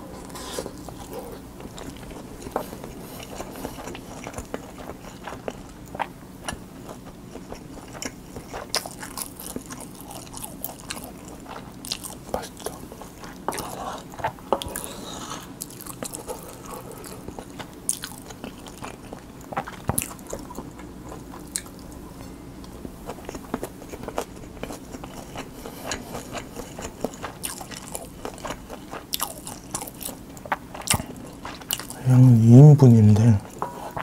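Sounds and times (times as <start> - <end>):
wet chewing with clicks: 22.6 - 32.0.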